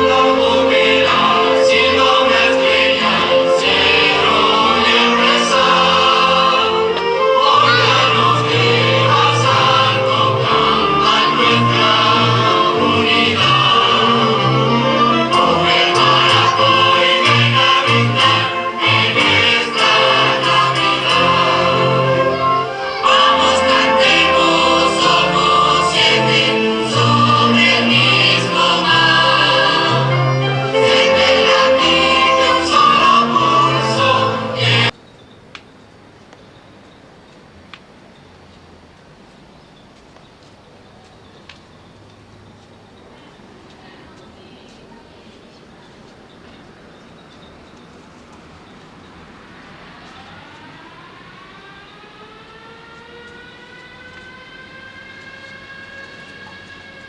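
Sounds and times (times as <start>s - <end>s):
choir singing long notes: 0.0s - 35.0s, 48.4s - 57.0s.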